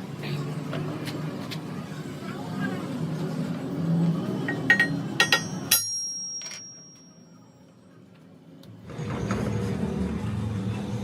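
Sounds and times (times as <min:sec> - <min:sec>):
metal tools clinking on metal: 0:04.5 - 0:07.3.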